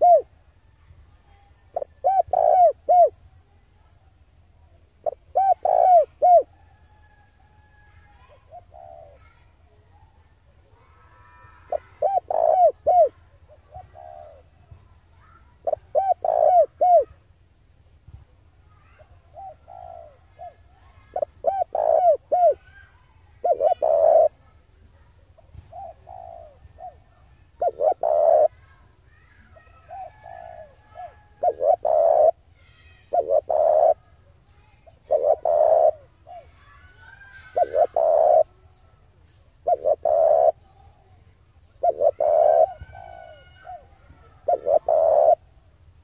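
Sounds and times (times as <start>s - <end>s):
dove cooing: 0.0s - 0.3s, 1.7s - 3.2s, 5.0s - 9.4s, 10.9s - 17.2s, 18.8s - 24.7s, 25.5s - 32.4s, 33.1s - 38.6s, 39.6s - 40.9s, 41.6s - 45.5s.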